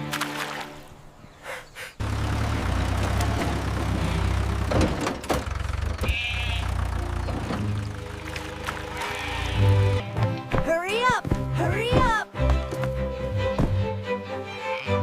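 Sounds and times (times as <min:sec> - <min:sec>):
clatter and knocks: 0:04.6 - 0:05.7
animal bleating: 0:06.0 - 0:07.0, 0:08.8 - 0:10.0, 0:14.5 - 0:15.0.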